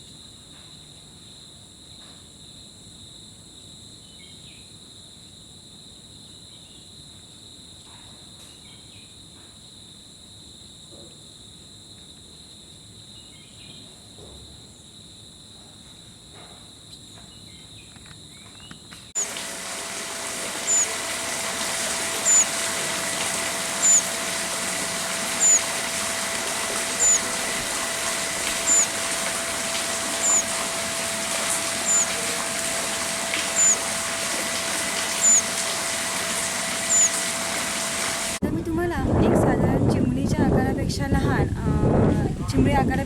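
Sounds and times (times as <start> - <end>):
steady hiss: 19.2 - 38.4
faint steady hum: 19.2 - 39.0
insects shrilling: 20.4 - 38.4.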